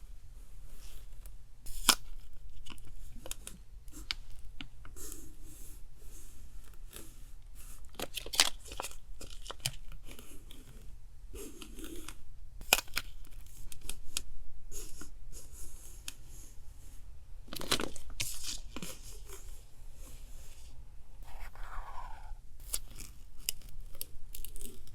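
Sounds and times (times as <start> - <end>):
paper rustling and tearing: 17.5 - 19.5.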